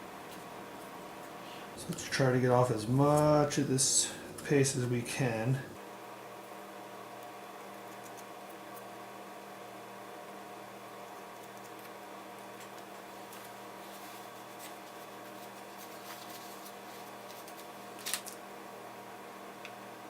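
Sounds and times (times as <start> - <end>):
electrical hum: 0.0 - 20.0
small clicks and ticks: 7.2 - 8.3.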